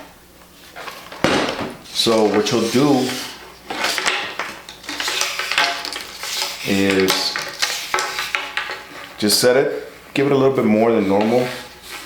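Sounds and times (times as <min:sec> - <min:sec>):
materials rustling and clattering: 0:00.5 - 0:09.4.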